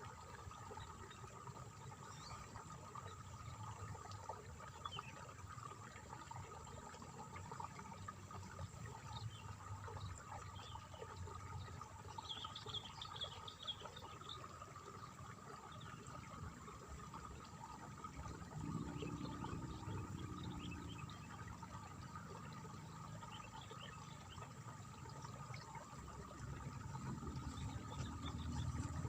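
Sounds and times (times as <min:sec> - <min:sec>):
water trickling: 0:00.0 - 0:29.0.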